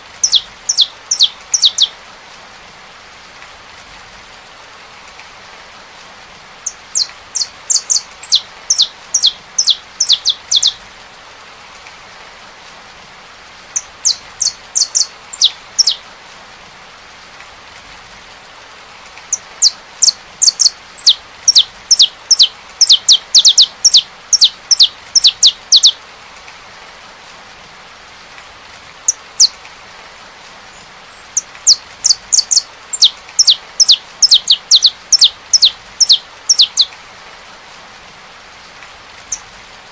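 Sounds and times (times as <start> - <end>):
rain pattering: 0.0 - 39.9
finch singing: 0.2 - 1.9, 6.6 - 10.8, 13.8 - 16.0, 19.3 - 26.0, 29.1 - 29.6, 30.7 - 36.9.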